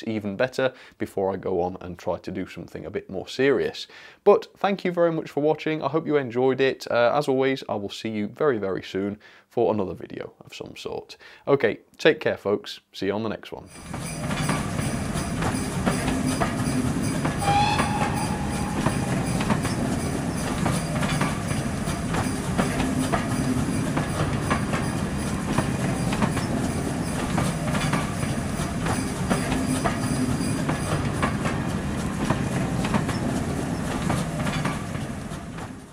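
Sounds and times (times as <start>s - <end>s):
railway carriages rumbling: 13.7s - 35.9s
train wheels clickety-clack: 13.7s - 35.9s
high tone: 17.3s - 21.8s.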